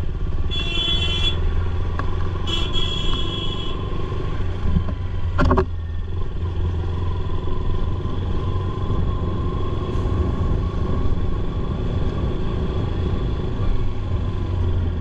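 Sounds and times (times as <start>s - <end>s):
heavy low rumble: 9.0s - 15.0s.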